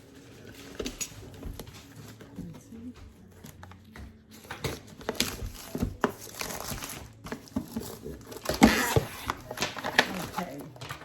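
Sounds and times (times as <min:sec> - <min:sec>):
packaging crinkling and rustling: 0:04.4 - 0:11.0.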